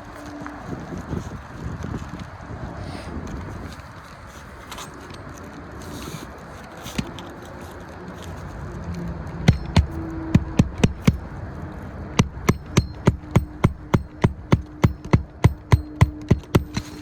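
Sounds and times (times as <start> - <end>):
steady background rumble: 7.0 - 17.0
quick sharp knocks: 9.5 - 11.2, 12.2 - 17.0.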